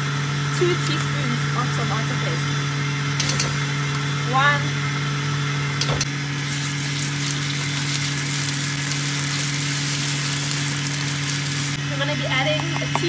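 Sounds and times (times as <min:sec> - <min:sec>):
onions sizzling in hot oil: 0:06.2 - 0:11.8.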